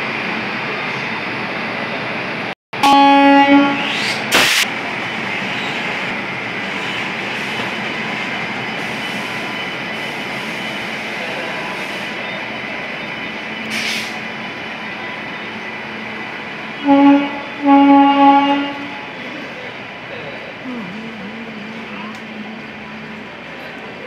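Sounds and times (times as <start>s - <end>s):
train wheels rumbling on rails: 3.7s - 24.0s
short loud noise burst: 3.8s - 4.6s.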